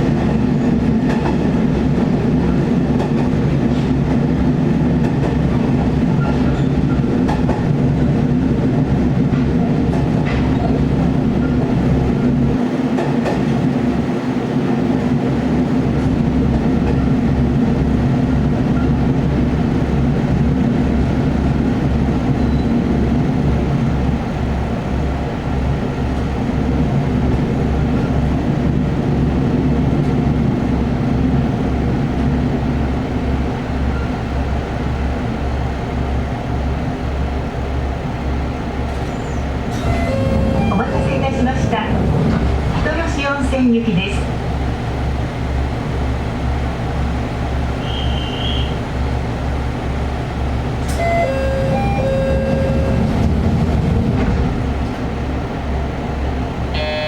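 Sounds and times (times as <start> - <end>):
diesel railcar engine droning: 0.0 - 57.0.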